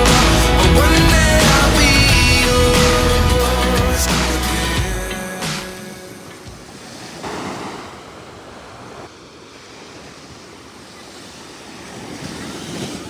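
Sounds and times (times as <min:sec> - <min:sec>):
steady rushing noise: 0:00.0 - 0:09.1.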